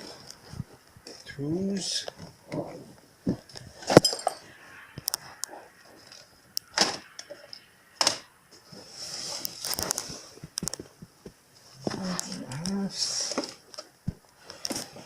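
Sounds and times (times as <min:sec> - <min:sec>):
rattle and rustle: 0:05.1 - 0:15.0.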